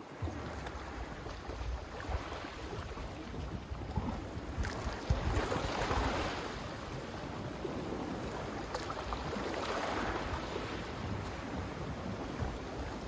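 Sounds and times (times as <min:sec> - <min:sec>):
sea waves washing in: 0:04.7 - 0:13.0.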